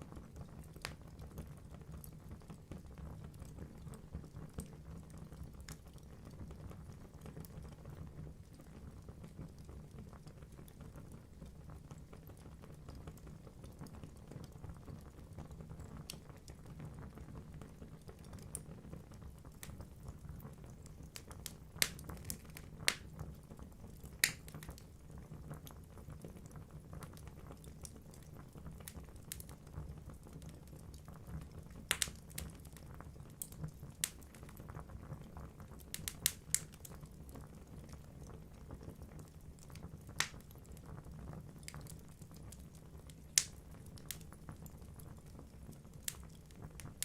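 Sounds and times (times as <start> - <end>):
wood crackling and popping: 0.0 - 47.0
fire flames rumbling: 27.0 - 47.0.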